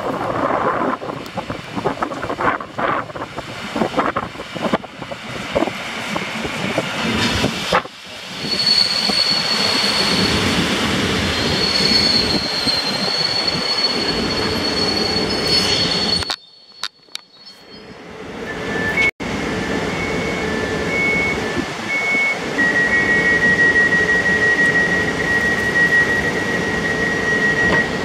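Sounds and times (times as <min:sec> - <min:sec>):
train rumbling: 0:00.0 - 0:28.0
brake squeal: 0:08.3 - 0:10.6, 0:11.3 - 0:19.1, 0:19.9 - 0:28.0.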